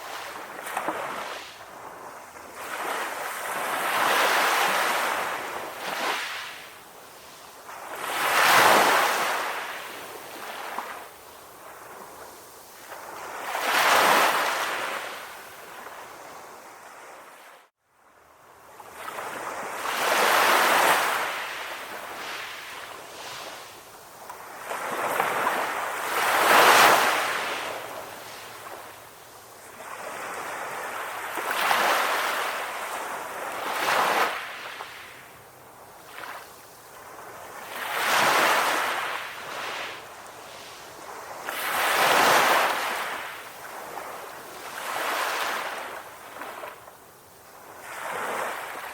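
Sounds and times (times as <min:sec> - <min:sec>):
sea waves breaking: 0:24.4 - 0:29.0, 0:36.1 - 0:46.8.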